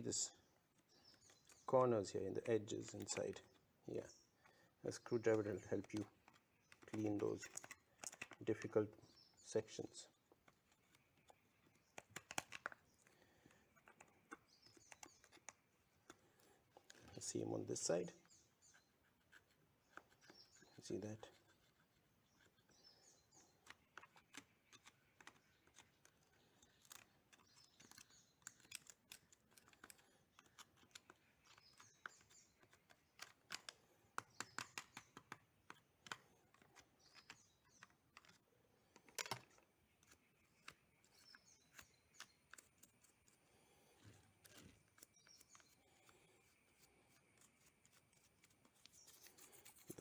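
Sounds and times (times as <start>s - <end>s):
screwdriver scraping a battery: 18.6s - 34.6s.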